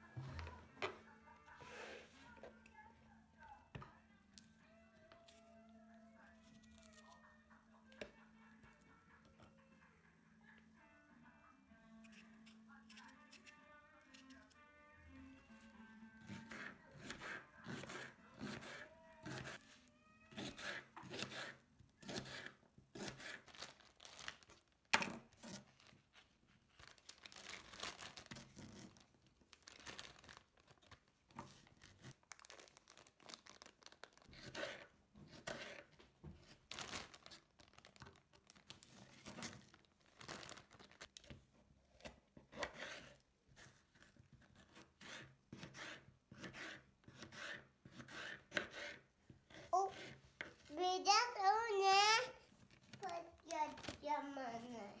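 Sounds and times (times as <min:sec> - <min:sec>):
rustling and crinkling: 0:23.4 - 0:42.2.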